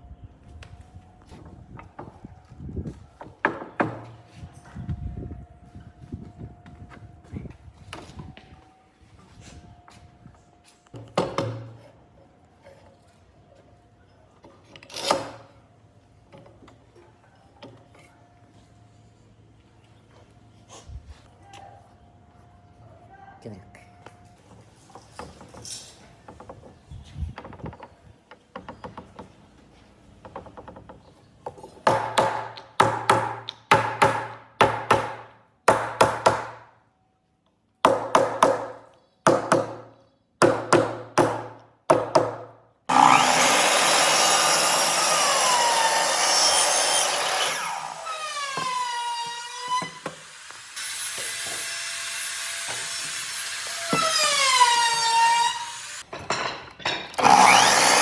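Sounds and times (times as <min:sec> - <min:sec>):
power tool cutting wood: 0:42.9 - 0:56.0, 0:57.2 - 0:58.0.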